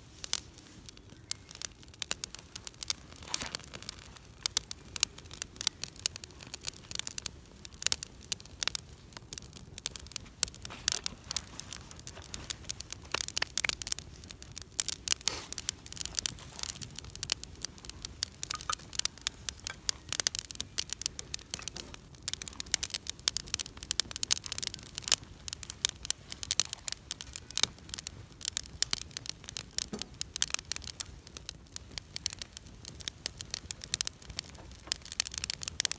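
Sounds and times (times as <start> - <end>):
campfire crackling and popping: 0.0 - 35.9.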